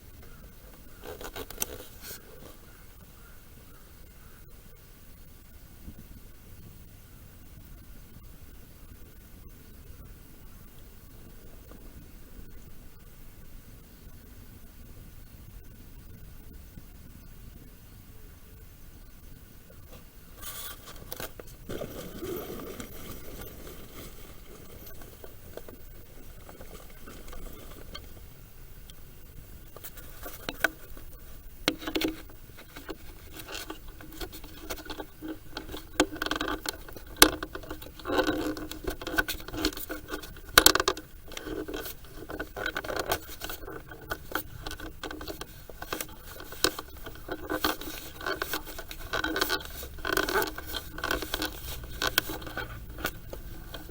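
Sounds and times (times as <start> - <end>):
objects scraping and rubbing: 1.0 - 2.7, 19.9 - 29.0, 29.6 - 53.9.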